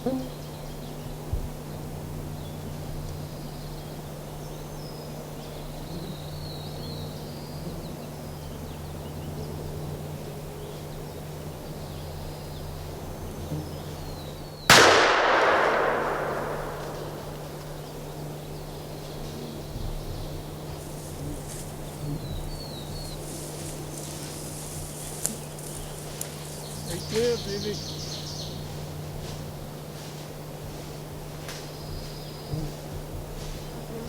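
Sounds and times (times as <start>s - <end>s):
steady low hum: 0.0s - 34.0s
shotgun blast with echo: 14.7s - 17.9s.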